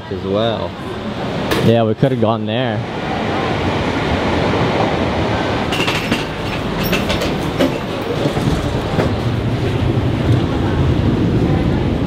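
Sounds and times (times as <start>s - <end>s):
train rumble: 0.6s - 12.0s
sharp clicks and rattles: 5.7s - 9.2s.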